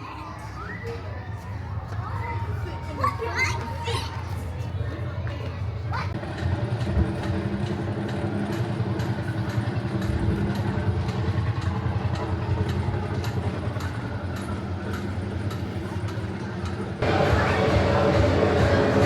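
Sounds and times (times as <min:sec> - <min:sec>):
ride vehicle engine hum: 0:06.1 - 0:19.0.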